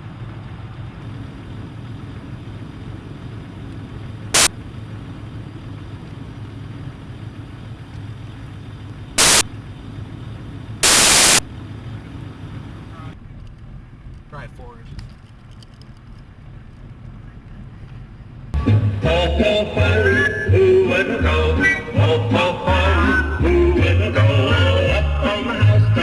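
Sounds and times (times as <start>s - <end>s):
vehicle engine and road noise: 0.0s - 26.0s
loud bursts of harsh noise: 9.2s - 9.4s, 10.8s - 11.4s.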